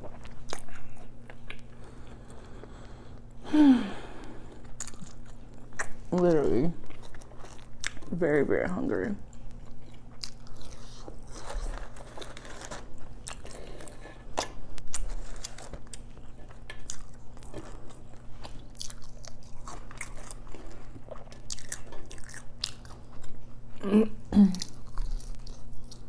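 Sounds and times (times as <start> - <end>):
biting and chewing: 9.3 - 23.6, 24.6 - 26.0.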